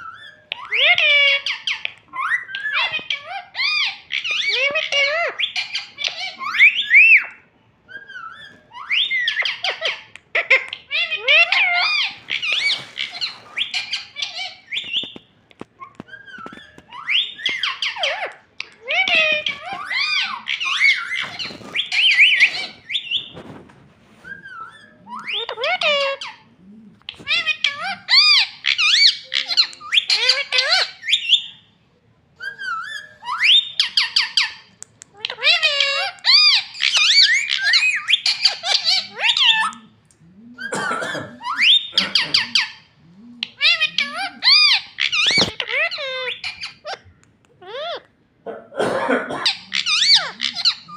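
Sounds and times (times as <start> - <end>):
parrot squeaks and whistles: 0.0 - 15.2, 15.8 - 26.4, 27.1 - 31.6, 32.4 - 39.8, 43.4 - 48.0, 49.5 - 50.9.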